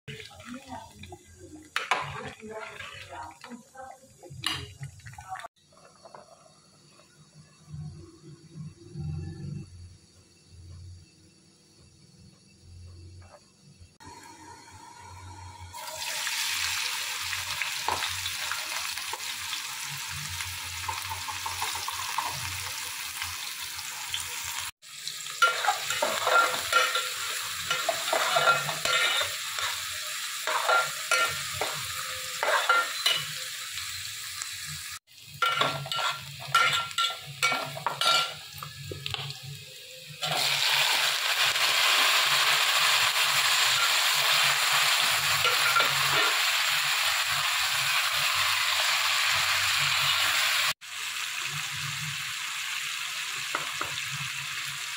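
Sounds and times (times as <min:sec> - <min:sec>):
food sizzling in hot oil: 0:00.1 - 0:09.6, 0:13.9 - 0:54.9
metal spoon scraping a pot: 0:01.8 - 0:03.3, 0:25.4 - 0:33.4, 0:35.4 - 0:38.4.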